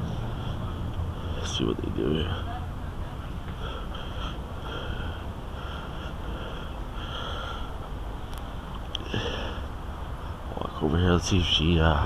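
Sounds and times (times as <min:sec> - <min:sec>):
low wind rumble: 0:00.0 - 0:12.0
person breathing through nose: 0:09.0 - 0:09.7.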